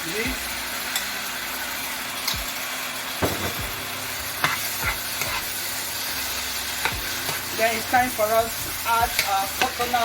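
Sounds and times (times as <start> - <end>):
sauce sizzling in a pot: 0.0 - 10.0
spoon knocking against pot: 3.2 - 3.7.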